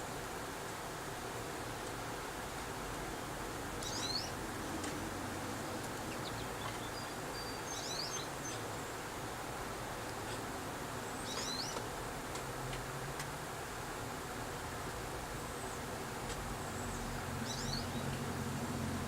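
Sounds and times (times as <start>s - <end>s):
steady background noise: 0.0s - 19.0s
small birds chirping: 3.8s - 9.1s, 10.1s - 11.9s, 16.6s - 18.3s.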